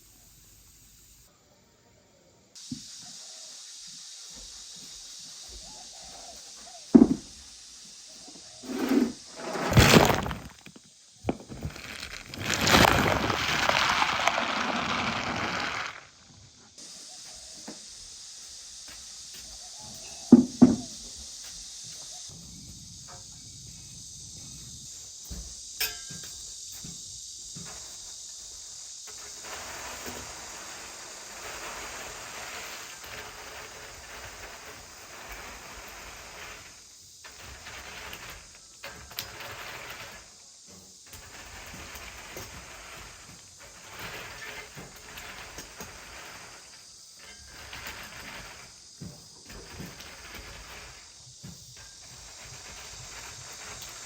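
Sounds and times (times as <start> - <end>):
steady high hiss: 0.0 - 54.0
leafy plants rustling: 8.0 - 17.4.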